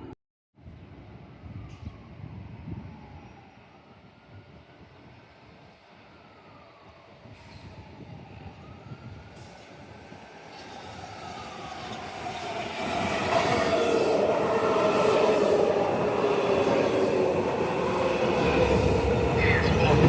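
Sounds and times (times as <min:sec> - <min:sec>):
falling train whine: 0:00.0 - 0:20.0
train arriving: 0:01.3 - 0:20.0
wheels rumbling on rail: 0:07.2 - 0:20.0.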